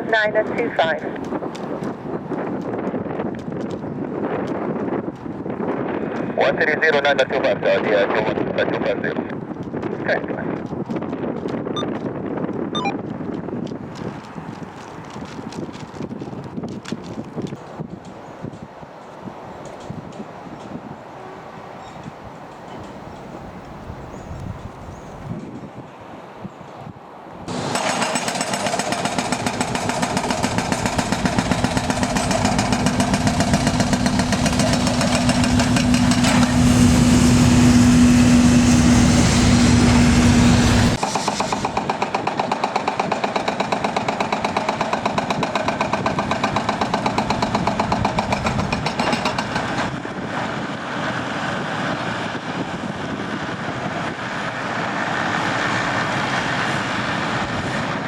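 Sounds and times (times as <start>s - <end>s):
jet engines running: 27.5s - 44.5s, 45.2s - 58.0s.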